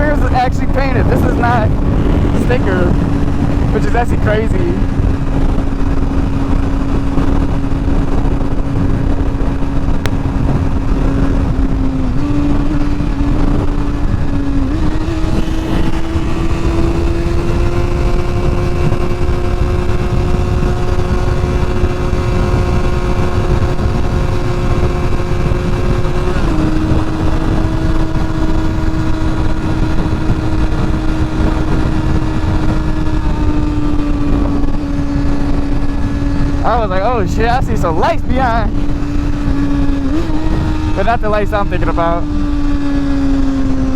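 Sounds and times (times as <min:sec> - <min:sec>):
motorcycle engine cruising: 0:00.0 - 0:43.9
wind rush on microphone: 0:00.0 - 0:43.9.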